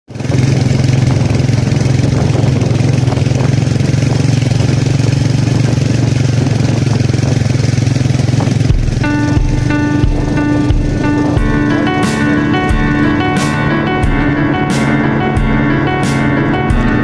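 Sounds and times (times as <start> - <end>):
motorcycle engine running: 0.1 - 17.0.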